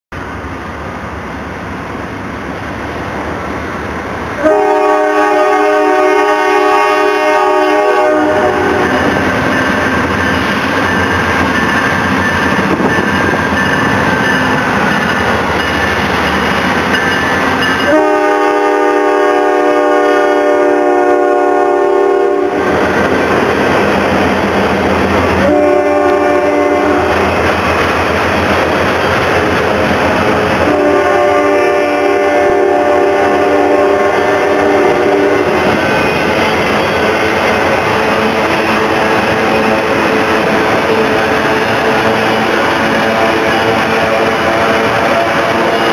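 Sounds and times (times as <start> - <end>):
diesel locomotive engine: 0.1 - 45.9
locomotive air horn blasts: 4.4 - 9.2, 17.8 - 22.7, 25.4 - 27.3, 30.6 - 35.6
wheels clattering on rails: 8.8 - 18.0.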